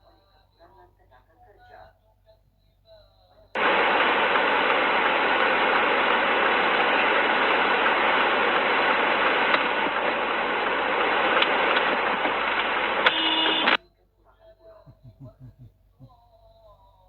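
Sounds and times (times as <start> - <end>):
moving vehicle road noise: 3.6 - 13.8.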